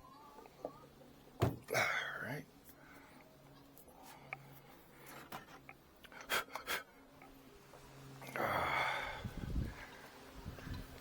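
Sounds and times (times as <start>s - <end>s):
honeybees humming: 0.0s - 11.0s
loud breathy rush: 8.2s - 11.0s.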